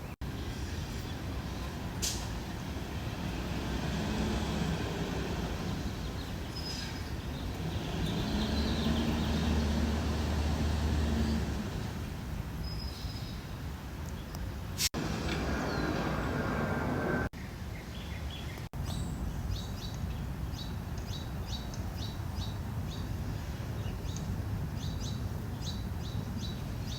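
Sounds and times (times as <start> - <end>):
road traffic rumble: 0.0 - 26.9
truck engine drone: 0.3 - 12.4, 15.0 - 17.3.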